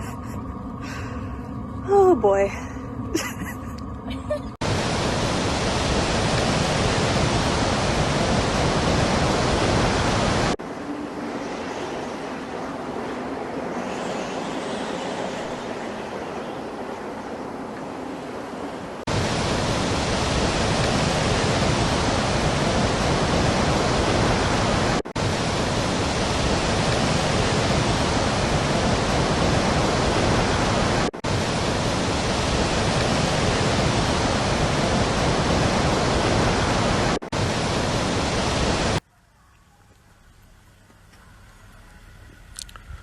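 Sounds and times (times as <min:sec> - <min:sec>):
loud steady rushing noise: 0:04.6 - 0:15.9, 0:18.8 - 0:39.0.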